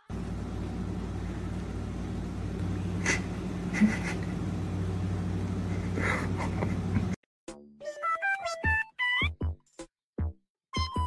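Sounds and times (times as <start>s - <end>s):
motor humming: 0.0s - 7.2s.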